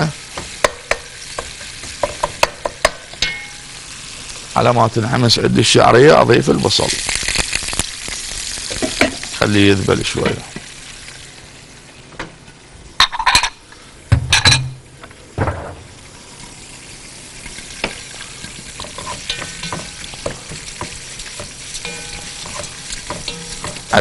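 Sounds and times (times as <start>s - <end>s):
food sizzling in a pot: 0.0s - 24.0s
spoon scraping a pot: 18.4s - 24.0s
spoon clattering: 18.8s - 24.0s.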